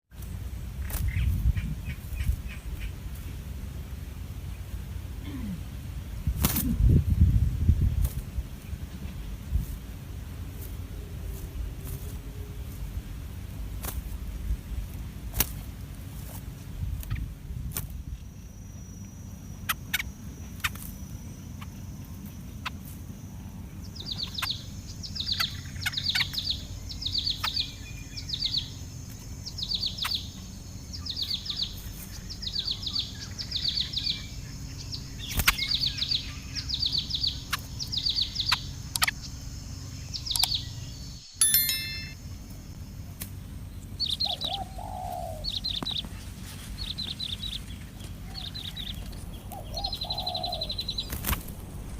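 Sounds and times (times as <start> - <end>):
nestling birds begging chirps: 0.1 - 6.6, 8.5 - 51.9
low background hum: 0.2 - 51.9
lower bird call: 43.8 - 51.2.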